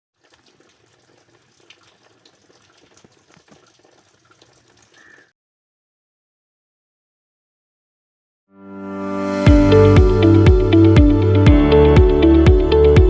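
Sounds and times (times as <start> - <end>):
rain patter: 0.2 - 5.2
sharp drips: 0.2 - 5.3.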